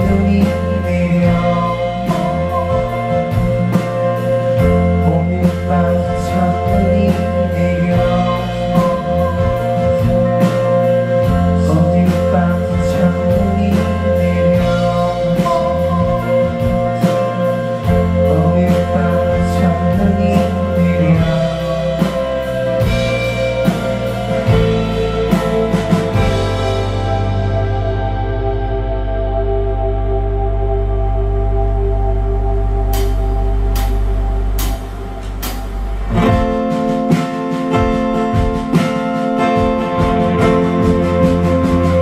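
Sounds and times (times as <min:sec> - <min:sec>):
person singing: 0:00.0 - 0:35.4
bass guitar: 0:00.0 - 0:42.0
guitars: 0:00.0 - 0:42.0
drum beat: 0:34.6 - 0:42.0.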